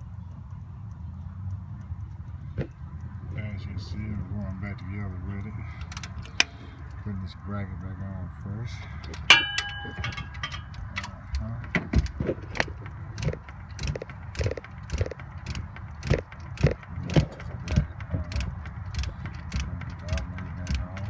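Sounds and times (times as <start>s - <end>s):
ratchet wrench clicking: 3.8s - 7.0s, 9.1s - 21.0s
metal part clanging: 9.2s - 11.9s.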